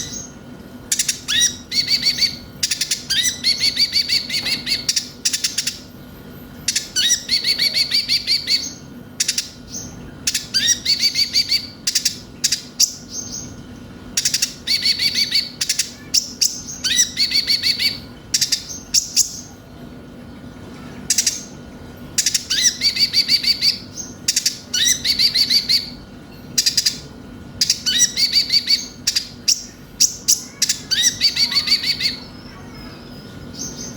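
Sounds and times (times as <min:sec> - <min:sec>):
sunbird singing high trills: 0:00.0 - 0:05.8, 0:27.6 - 0:33.9
faint steady hum: 0:00.0 - 0:33.9.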